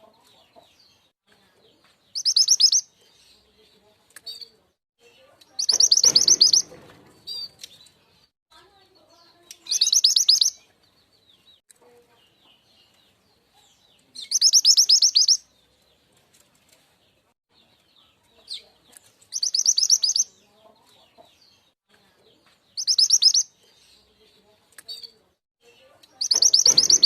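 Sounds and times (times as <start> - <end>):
faint bird chirps: 1.7 - 3.6, 4.3 - 8.3, 9.0 - 10.8, 11.8 - 15.8, 17.9 - 21.3, 22.4 - 27.0
high bird trills: 5.6 - 7.6, 9.6 - 10.6, 26.2 - 27.0.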